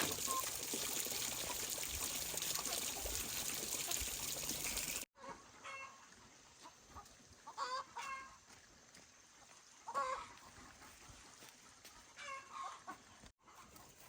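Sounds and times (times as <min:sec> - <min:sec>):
water pouring: 0:00.0 - 0:05.1
chickens clucking: 0:05.2 - 0:08.4, 0:09.8 - 0:14.0.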